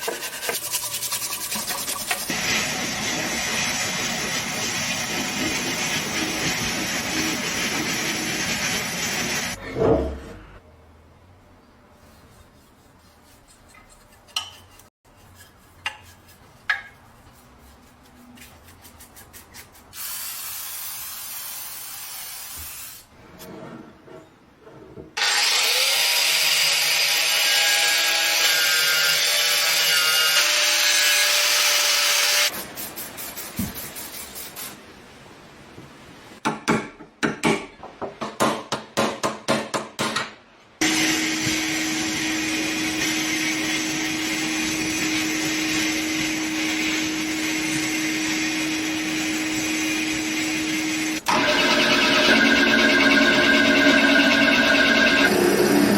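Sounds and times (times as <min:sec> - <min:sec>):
rubbing strokes: 0:00.0 - 0:02.3, 0:11.9 - 0:20.0
power tool running: 0:40.8 - 0:55.9.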